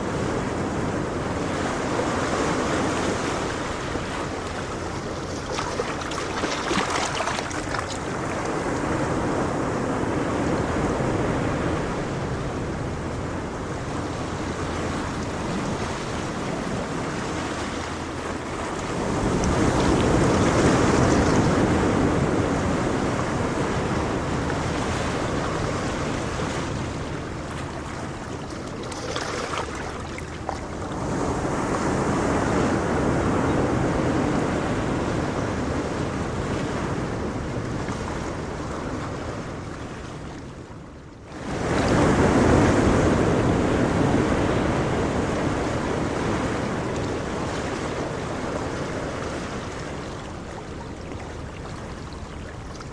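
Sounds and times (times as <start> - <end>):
ocean waves breaking in surf: 0.0 - 52.9.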